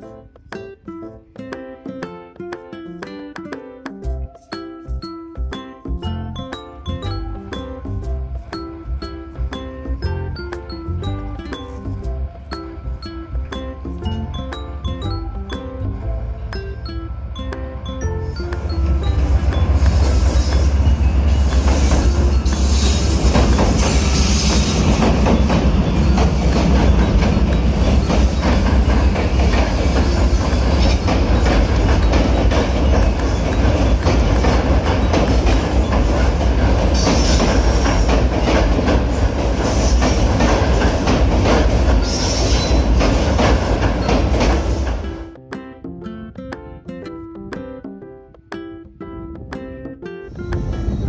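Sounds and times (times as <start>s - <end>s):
train rumbling past: 6.8s - 45.4s, 50.3s - 51.0s
wheels clattering over rails: 6.9s - 45.4s
wheel squeal: 18.0s - 45.2s.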